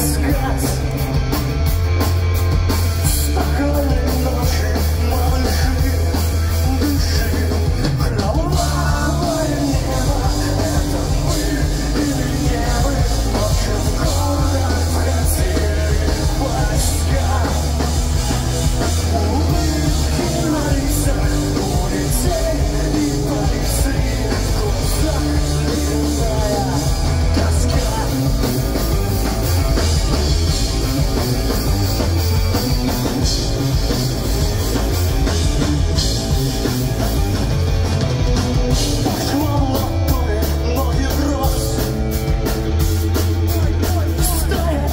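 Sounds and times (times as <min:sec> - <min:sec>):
pop-punk band playing live: 0:00.0 - 0:44.9.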